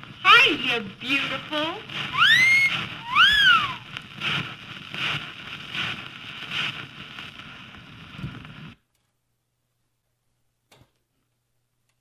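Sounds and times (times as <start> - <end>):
wolf whistle: 2.1 - 3.9.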